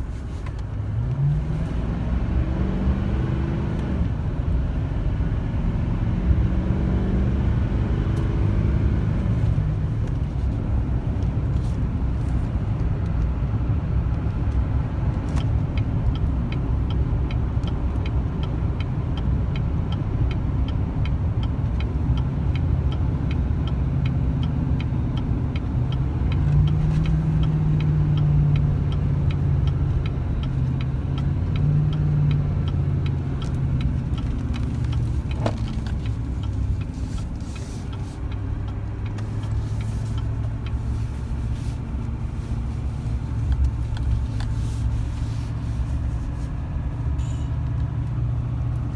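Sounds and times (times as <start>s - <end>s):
diesel truck engine drone: 0.0s - 48.9s
light ticking: 15.4s - 45.2s.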